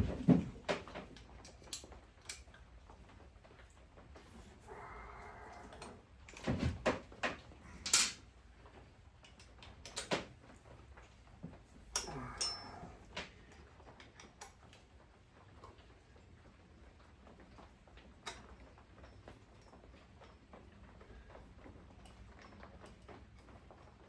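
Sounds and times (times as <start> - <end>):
sharp metal knocks and clinks: 11.9 - 12.9.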